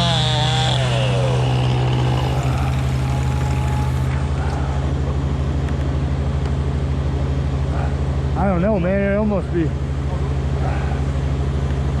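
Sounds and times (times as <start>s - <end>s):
chainsaw revving: 0.0s - 4.5s
engine idling: 0.0s - 5.3s.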